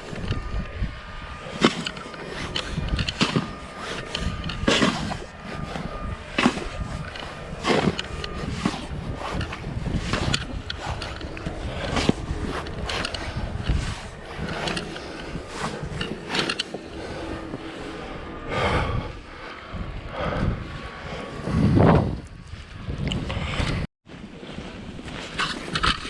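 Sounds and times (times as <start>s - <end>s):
footsteps crunching in snow: 0.0s - 18.4s, 24.1s - 26.0s
wind rumble on microphone: 0.0s - 26.0s.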